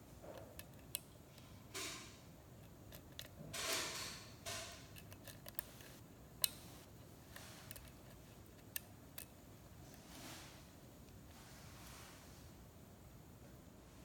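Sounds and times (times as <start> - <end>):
lock pick scrapes: 1.8 - 6.0.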